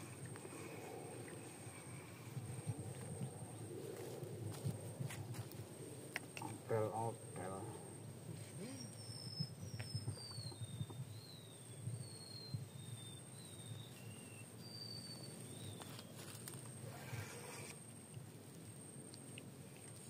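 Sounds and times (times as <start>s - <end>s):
bird singing whistled notes: 8.6s - 16.2s.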